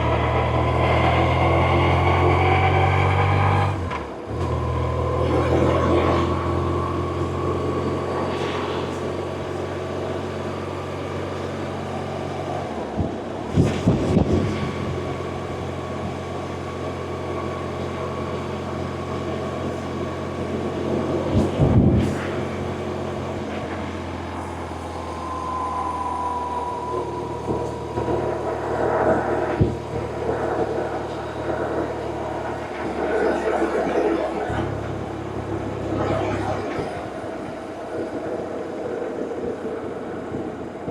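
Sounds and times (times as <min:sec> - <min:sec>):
wind rush: 0:11.8 - 0:17.6, 0:20.0 - 0:40.9.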